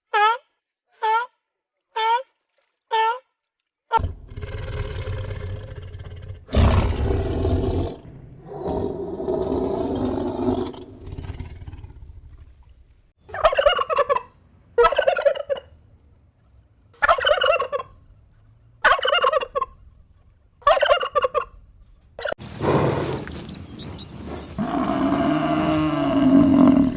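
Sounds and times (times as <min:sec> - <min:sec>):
animal calls: 0:18.8 - 0:19.8, 0:20.6 - 0:21.5, 0:22.2 - 0:26.9
short warbling calls: 0:22.2 - 0:26.9.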